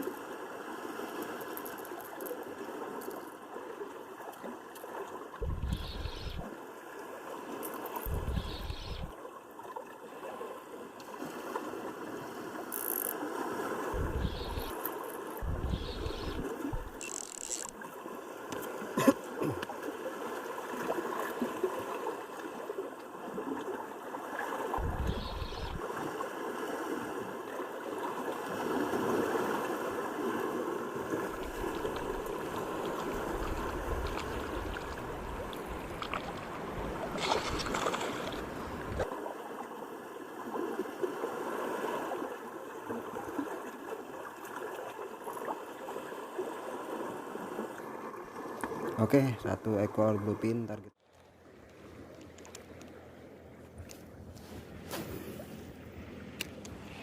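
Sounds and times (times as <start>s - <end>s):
water washing along shoreline: 0.0s - 57.0s
deep rumbling: 15.4s - 17.0s, 24.8s - 25.8s.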